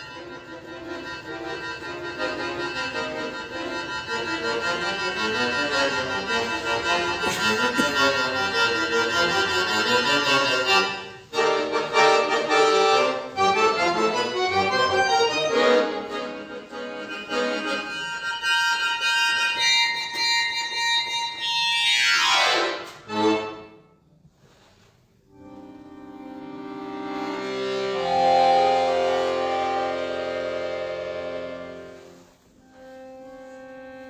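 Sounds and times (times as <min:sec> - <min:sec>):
accordion playing chords: 0:00.0 - 0:34.0.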